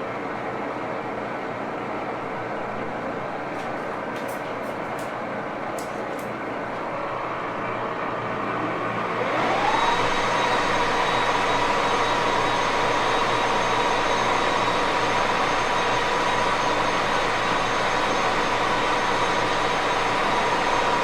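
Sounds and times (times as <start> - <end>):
lathe whine: 7.1 - 21.0.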